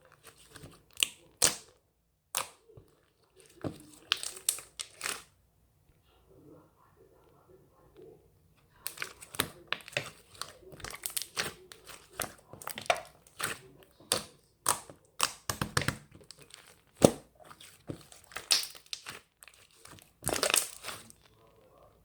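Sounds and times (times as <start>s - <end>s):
thin material crinkling: 16.2s - 22.0s.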